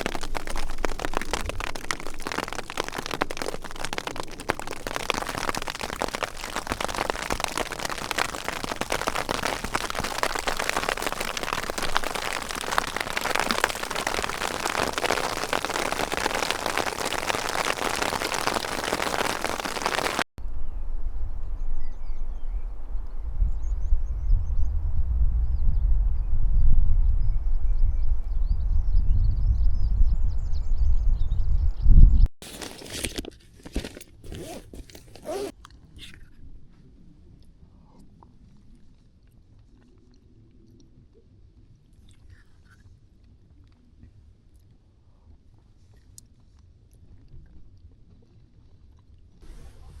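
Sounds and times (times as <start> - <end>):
hailstones clattering: 0.0 - 20.3, 32.4 - 35.5
wind rumble on microphone: 20.4 - 32.3.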